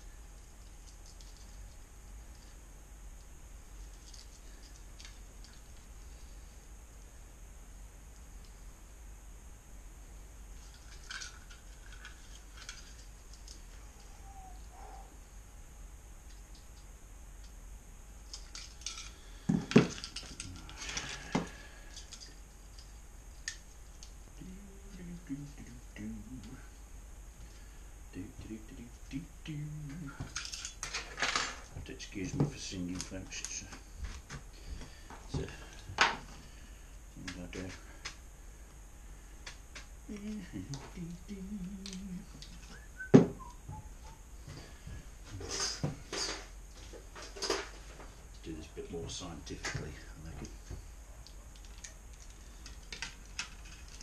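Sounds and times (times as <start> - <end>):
faint whistled notes: 14.0 - 15.1, 42.6 - 44.2
man humming: 14.0 - 15.1, 20.3 - 21.7, 24.4 - 26.8, 28.1 - 30.4, 40.1 - 44.2.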